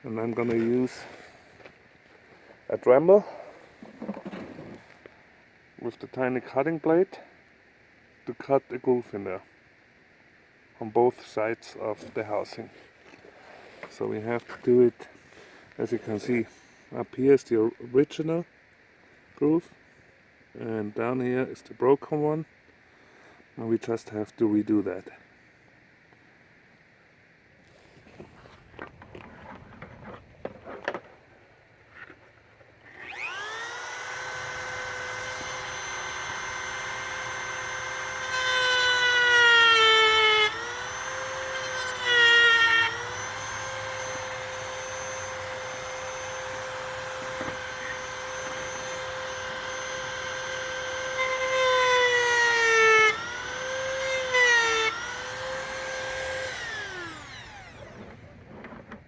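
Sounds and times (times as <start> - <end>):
rotary tool high whine: 32.8 - 58.9.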